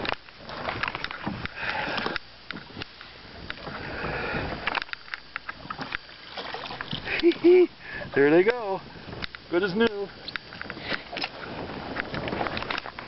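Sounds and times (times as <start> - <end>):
knocks and clicks in boat: 0.0 - 7.5, 8.3 - 13.0
water splashing: 3.6 - 8.2.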